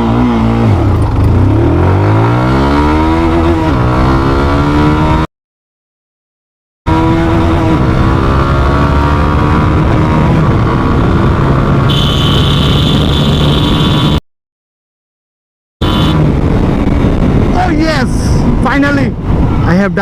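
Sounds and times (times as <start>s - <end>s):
motorcycle engine running: 11.9s - 14.2s.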